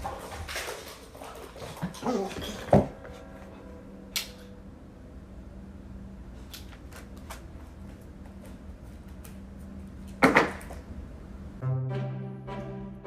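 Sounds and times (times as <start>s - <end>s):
steady low hum: 2.6s - 10.2s.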